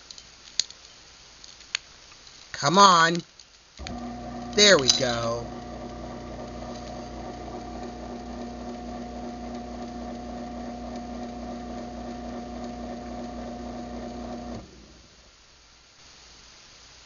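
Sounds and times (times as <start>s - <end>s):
garage door opener motor humming: 3.8s - 15.3s.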